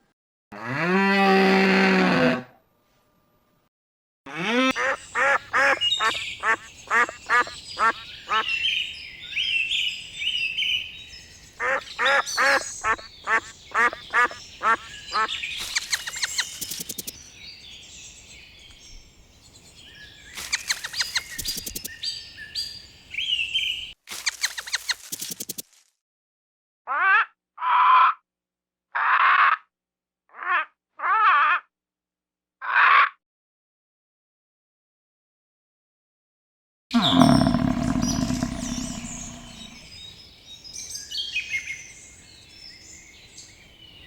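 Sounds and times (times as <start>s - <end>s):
ducks quacking: 4.3s - 8.5s
fast chattering calls: 11.6s - 17.1s, 37.0s - 39.8s
high chirping calls: 37.0s - 40.0s.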